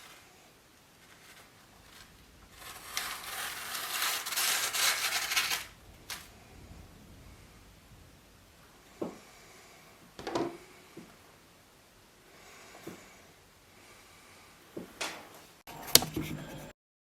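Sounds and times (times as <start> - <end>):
rough scraping rustling: 0.0 - 9.9, 15.7 - 16.7.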